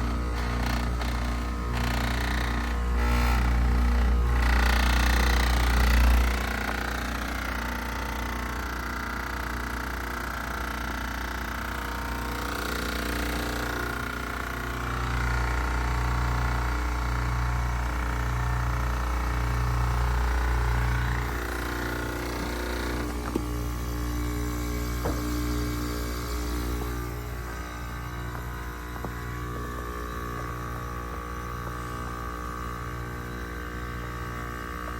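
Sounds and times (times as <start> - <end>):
heat pump humming: 0.0 - 34.9.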